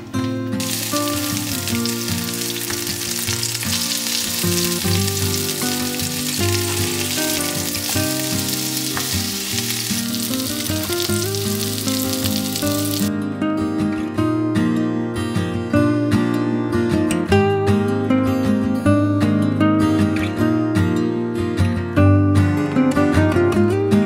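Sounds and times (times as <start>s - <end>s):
food sizzling in a pan: 0.0s - 13.1s
background music: 0.0s - 15.0s.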